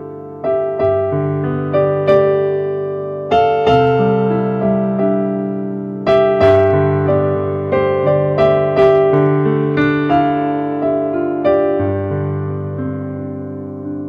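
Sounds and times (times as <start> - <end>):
slow piano-like keyboard music: 0.0 - 14.0.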